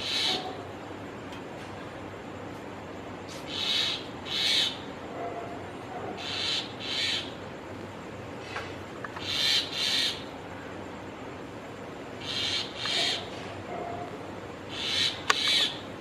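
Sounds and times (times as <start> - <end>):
bird calling: 0.0 - 0.6, 3.3 - 4.9, 6.2 - 7.4, 9.2 - 10.7, 12.2 - 13.5, 14.7 - 15.9.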